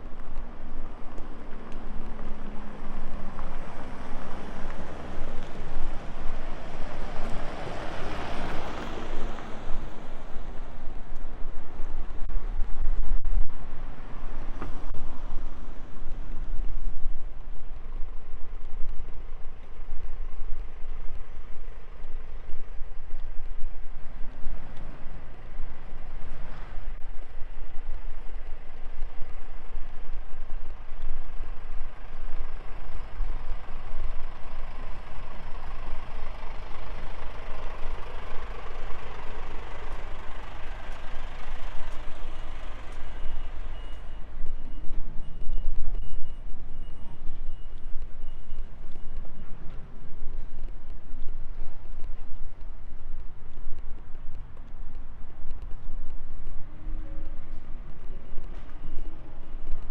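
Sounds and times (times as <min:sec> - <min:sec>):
vehicle passing by: 0:02.1 - 0:10.9
steady low rumble: 0:09.2 - 0:59.9.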